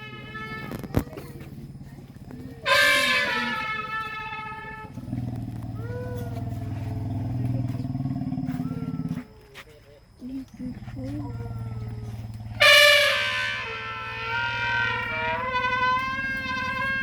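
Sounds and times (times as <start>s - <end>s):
elephant trumpeting: 0.0s - 1.0s, 2.6s - 6.8s, 12.6s - 17.0s.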